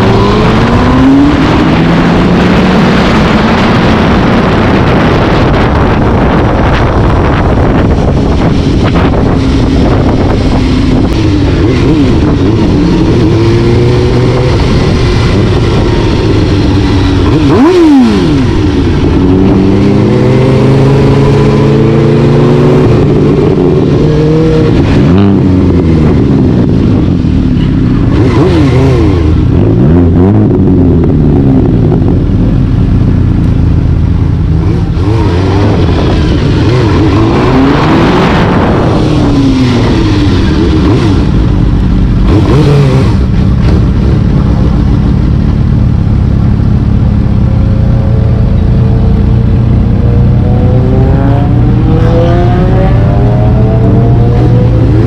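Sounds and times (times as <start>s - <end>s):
vehicle engine revving: 0.0s - 32.8s, 33.4s - 55.0s.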